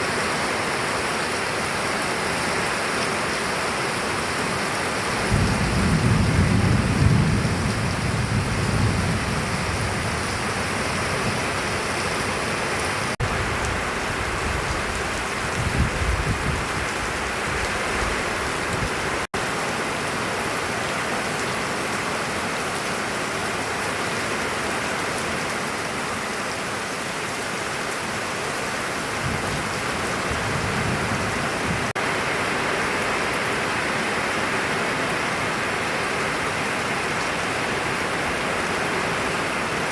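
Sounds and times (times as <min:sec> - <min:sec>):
heavy rain falling: 0:00.0 - 0:39.9
thunder rumbling: 0:05.2 - 0:19.1, 0:29.2 - 0:31.9.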